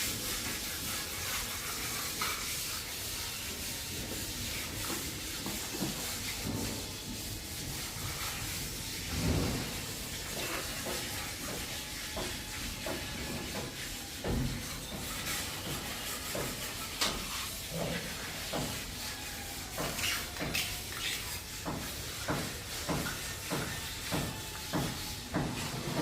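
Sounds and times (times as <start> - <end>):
steady hiss: 0.0 - 19.0
grout scraping on tiles: 0.0 - 26.0.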